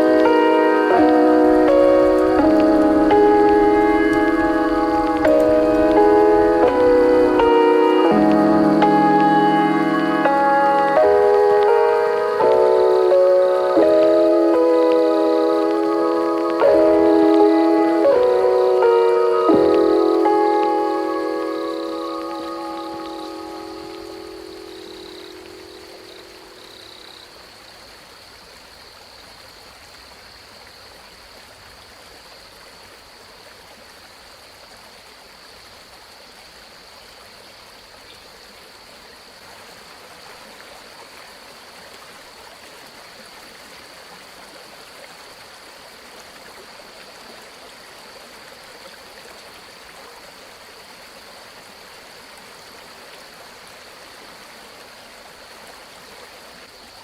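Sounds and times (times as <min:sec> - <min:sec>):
thin high tone: 0:00.0 - 0:26.6
running water rushing: 0:00.0 - 0:57.0.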